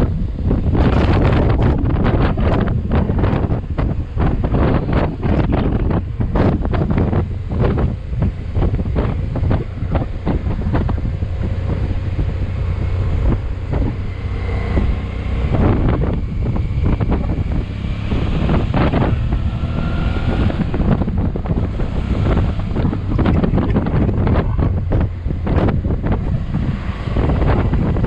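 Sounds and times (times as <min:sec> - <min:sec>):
motorcycle engine rumble: 0:00.0 - 0:28.0
wind buffeting microphone: 0:00.0 - 0:28.0.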